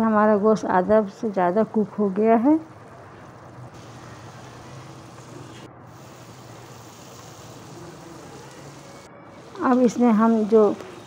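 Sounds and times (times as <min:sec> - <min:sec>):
chicken frying in oil: 0:02.4 - 0:11.0.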